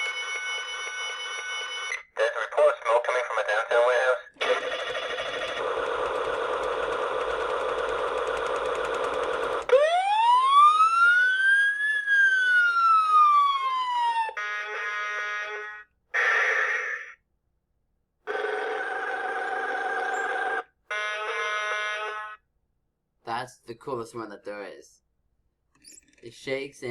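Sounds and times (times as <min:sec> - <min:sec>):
toy siren wailing: 0:09.7 - 0:17.1, 0:18.6 - 0:22.3.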